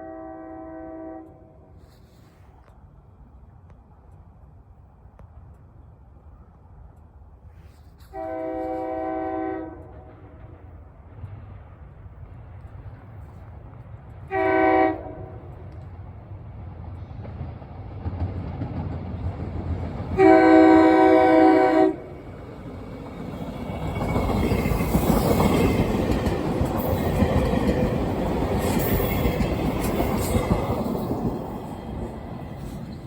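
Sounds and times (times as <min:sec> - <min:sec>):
train horn blast: 0:00.0 - 0:02.0, 0:08.0 - 0:10.1, 0:14.3 - 0:15.6, 0:20.2 - 0:22.2
train wheels clattering on rails: 0:15.2 - 0:21.2, 0:22.3 - 0:33.0.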